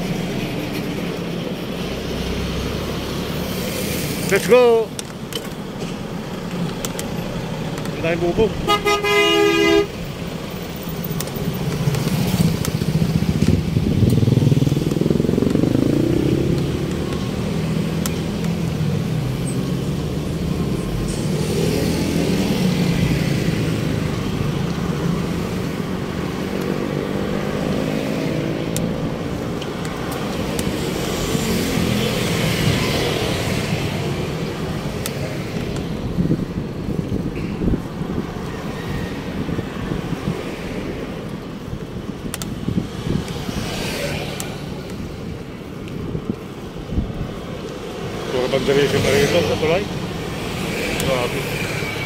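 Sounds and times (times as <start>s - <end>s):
road traffic: 0.0s - 52.0s
engine accelerating: 11.9s - 18.3s.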